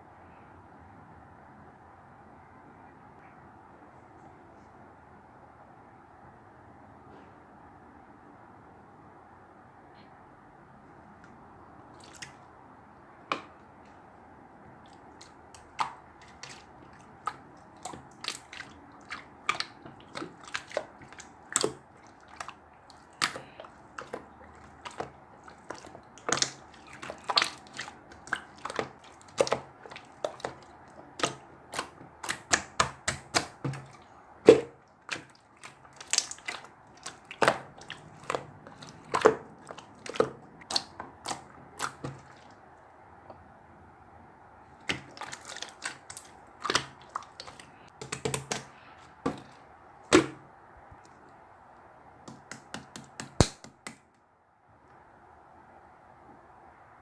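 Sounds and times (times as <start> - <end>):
slime popping: 22.4 - 42.4.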